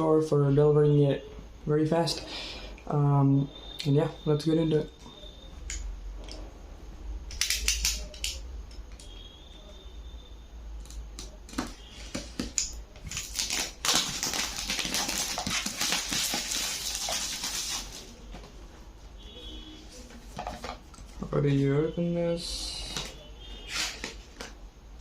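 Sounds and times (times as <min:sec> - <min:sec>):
packaging rustling: 0:12.1 - 0:18.2.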